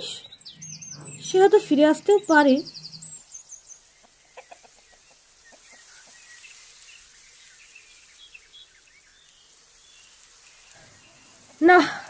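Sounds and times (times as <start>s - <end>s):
bird chirps: 0.0s - 12.0s
steady hiss: 3.0s - 12.0s
chicken clucking: 4.0s - 6.4s.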